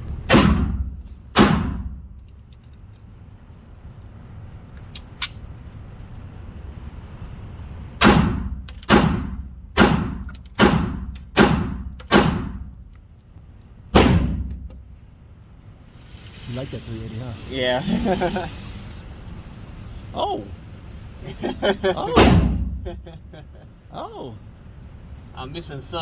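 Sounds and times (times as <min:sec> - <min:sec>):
gunshots with echo: 0:08.0 - 0:12.6, 0:14.0 - 0:14.6.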